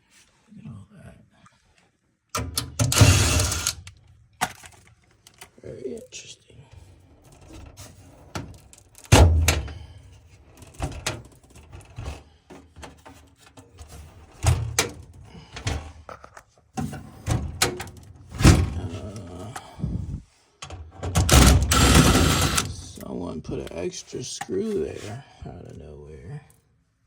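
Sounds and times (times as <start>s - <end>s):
rattling and scraping: 21.0s - 23.0s.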